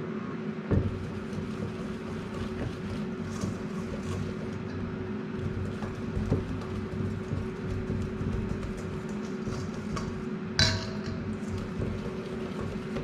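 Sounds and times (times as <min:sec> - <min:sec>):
knock: 0:00.7 - 0:01.1.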